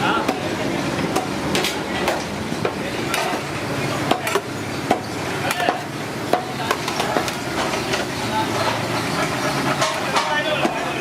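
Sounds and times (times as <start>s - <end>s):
background hum and hiss: 0.0s - 11.0s
metal utensils clinking on cookware: 3.0s - 11.0s.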